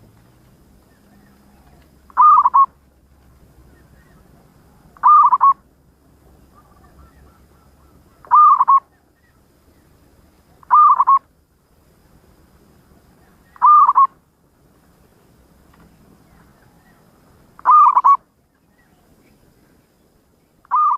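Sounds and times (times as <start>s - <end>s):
dove cooing: 0.9s - 2.8s, 3.7s - 5.6s, 6.4s - 9.3s, 10.5s - 11.3s, 13.2s - 14.2s, 16.3s - 18.2s.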